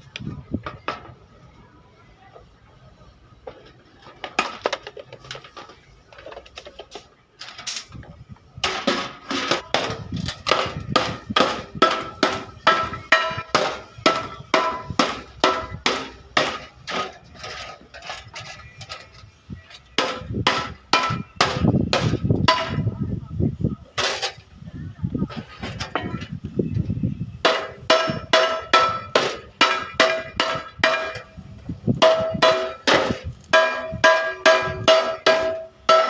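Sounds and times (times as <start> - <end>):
hammer striking sheet metal: 8.6 - 17.1, 20.0 - 22.8, 27.4 - 31.3, 32.0 - 36.0.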